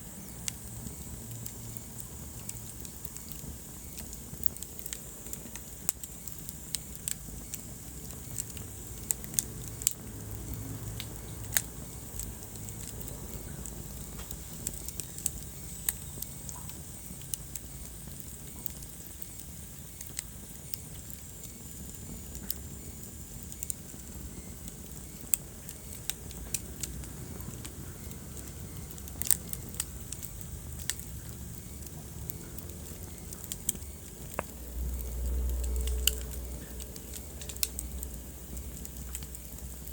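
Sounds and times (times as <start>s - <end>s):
logs crackling and popping: 0.0s - 39.9s
low rumble of flames: 0.0s - 39.9s.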